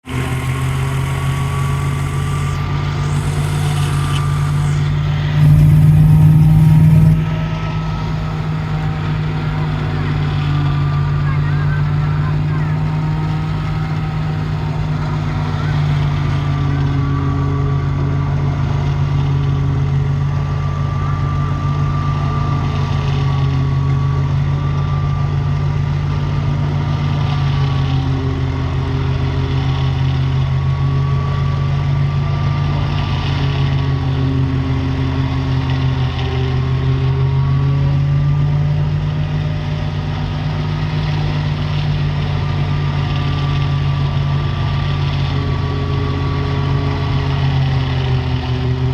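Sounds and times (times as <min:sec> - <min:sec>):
thin high whine: 0:00.0 - 0:25.6
diesel tractor engine running: 0:00.0 - 0:48.9.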